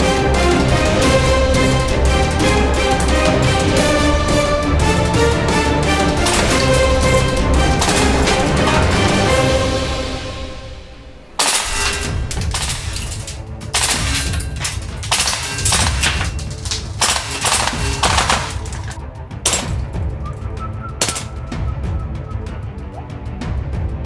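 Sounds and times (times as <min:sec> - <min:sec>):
background music: 0:00.0 - 0:24.0
automatic gunfire: 0:13.9 - 0:19.8.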